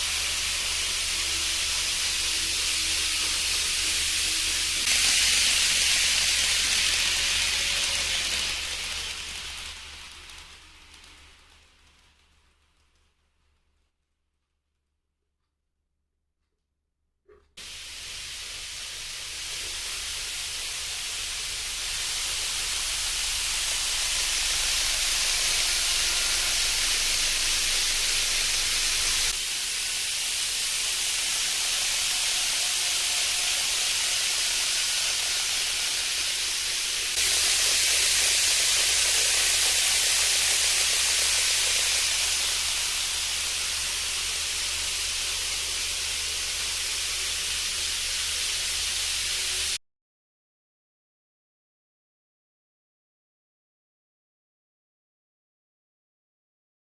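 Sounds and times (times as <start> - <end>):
faint motor whine: 0.0 - 12.8
model train wheels rushing: 0.0 - 14.1, 17.6 - 49.8.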